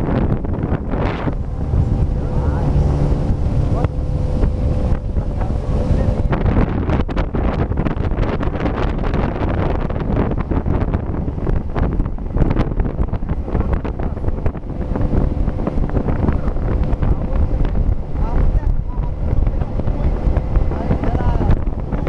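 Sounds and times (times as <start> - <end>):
motorboat running through water: 0.0 - 22.0
wind buffeting microphone: 0.0 - 22.0.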